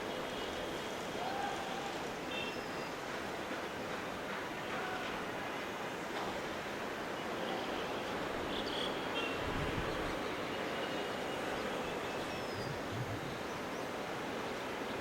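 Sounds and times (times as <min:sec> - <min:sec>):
distant jet engine rush: 0:11.1 - 0:14.9.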